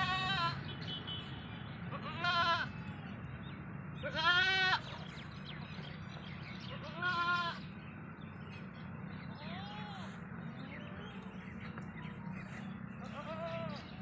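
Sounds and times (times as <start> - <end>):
goats bleating: 0.0 - 0.6, 1.9 - 2.7, 4.0 - 4.9, 6.8 - 7.6, 9.3 - 10.1, 13.0 - 13.9.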